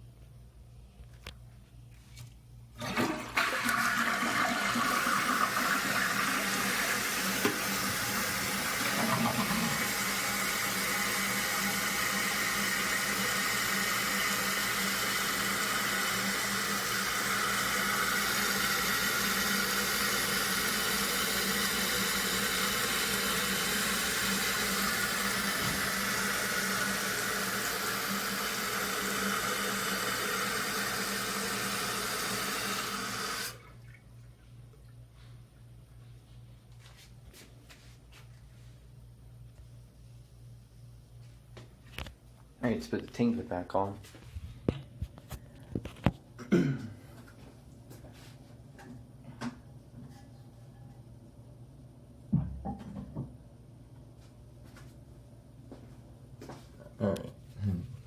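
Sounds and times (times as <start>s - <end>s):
toilet flushing: 2.8s - 34.1s
toilet tank refilling: 2.8s - 34.1s.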